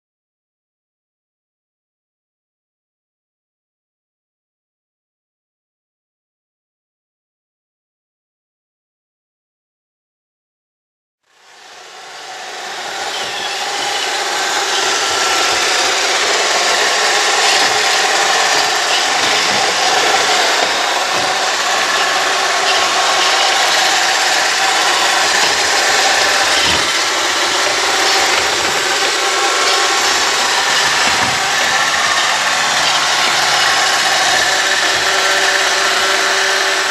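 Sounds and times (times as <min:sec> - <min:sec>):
robot vacuum cleaner running: 0:11.3 - 0:36.9.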